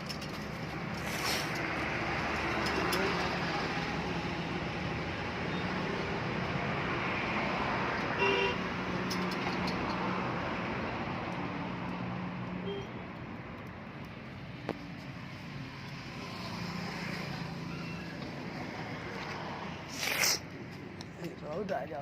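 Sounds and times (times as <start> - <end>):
traffic engine hum: 0.0 - 22.0
vehicle horn toot: 8.2 - 8.6, 12.6 - 13.0.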